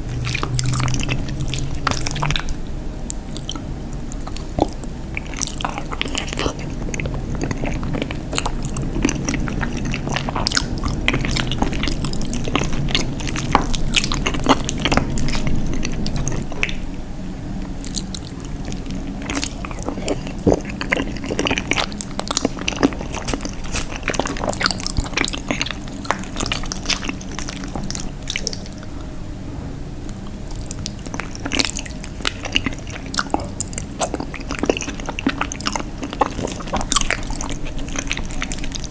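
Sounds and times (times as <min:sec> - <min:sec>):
chewing cheese: 0:00.0 - 0:17.0, 0:17.6 - 0:29.2, 0:30.1 - 0:38.9
mouth clicks and smacks: 0:19.3 - 0:28.8.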